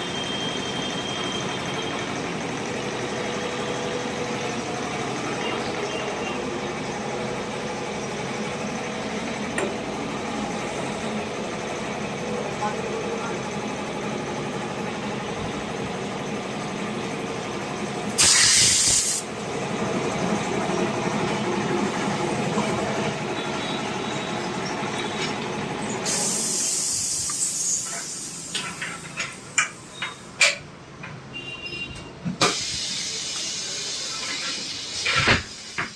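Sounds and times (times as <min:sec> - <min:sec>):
steady machine hum: 0:00.0 - 0:18.2, 0:19.0 - 0:29.8
air hiss: 0:18.2 - 0:19.3, 0:26.0 - 0:29.0, 0:32.4 - 0:35.9.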